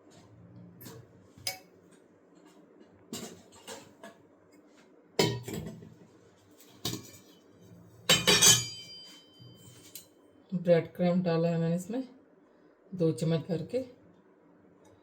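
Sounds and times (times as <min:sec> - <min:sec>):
spoon and metal dishes clinking: 0:05.2 - 0:05.8, 0:06.8 - 0:07.4, 0:08.1 - 0:10.1.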